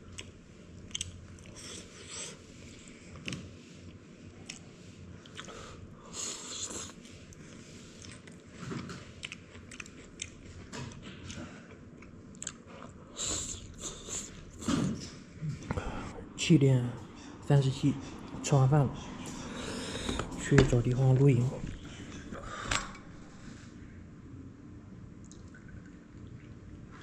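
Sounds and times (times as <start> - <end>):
man chewing food: 0.0 - 16.1.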